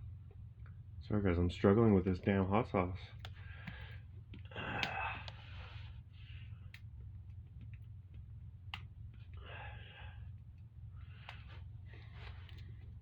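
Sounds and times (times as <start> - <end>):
person sighing heavily: 4.5 - 5.7, 9.4 - 10.2.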